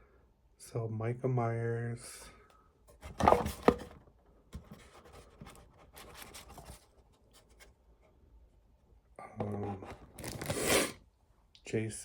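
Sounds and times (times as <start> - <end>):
paper rustling and scraping: 4.6 - 7.7, 9.6 - 11.0.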